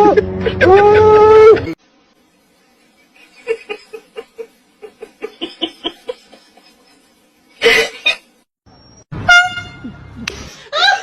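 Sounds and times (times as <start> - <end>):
person laughing: 0.0 - 1.8, 3.1 - 8.2, 9.8 - 11.0.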